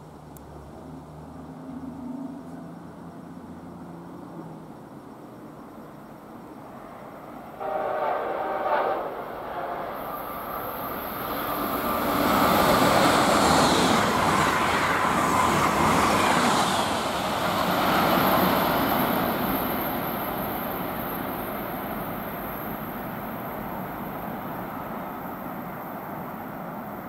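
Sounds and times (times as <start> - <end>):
train wheels rushing on rails: 5.8 - 27.0
train horn: 7.6 - 10.2.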